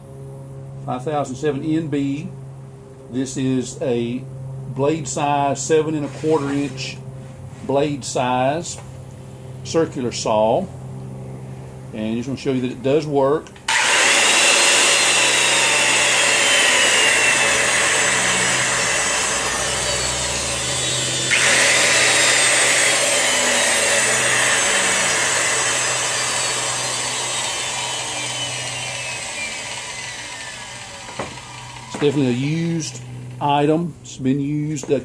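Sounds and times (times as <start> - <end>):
circular saw motor whine: 13.7 - 33.9.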